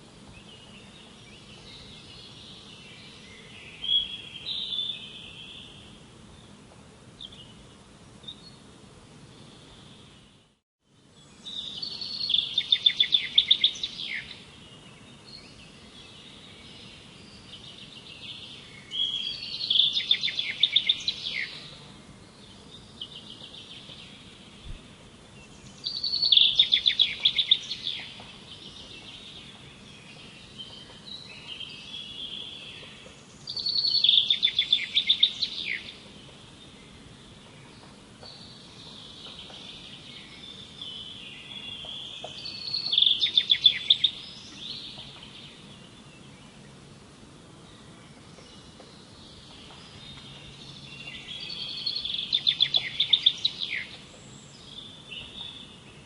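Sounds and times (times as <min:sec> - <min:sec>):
songbird singing: 0:00.0 - 0:56.0
faint birds calling: 0:11.3 - 0:56.0.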